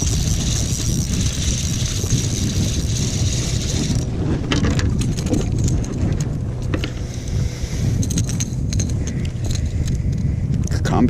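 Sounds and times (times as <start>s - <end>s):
sharp clicks and knocks: 0.0s - 7.1s
wind buffeting microphone: 0.0s - 11.0s.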